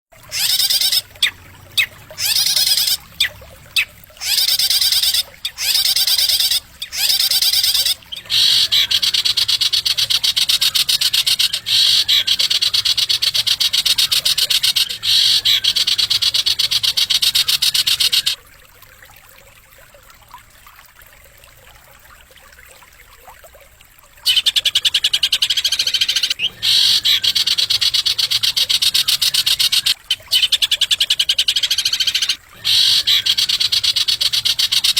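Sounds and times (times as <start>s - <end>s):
songbird fast rattling trill: 0.3s - 1.4s, 2.2s - 3.0s, 3.8s - 18.4s, 24.3s - 34.9s.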